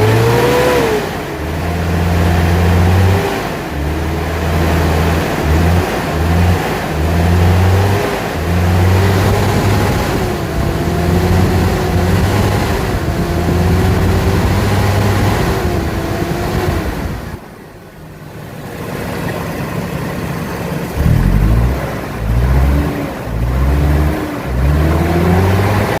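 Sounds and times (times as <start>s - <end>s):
truck engine revving: 0.0s - 17.5s, 18.2s - 26.0s
heavy low rumbling: 8.4s - 17.4s, 20.8s - 25.4s.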